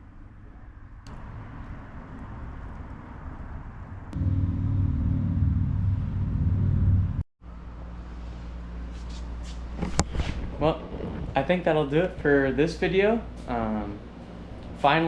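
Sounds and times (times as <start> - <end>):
car engine rumble: 0.2 - 7.8.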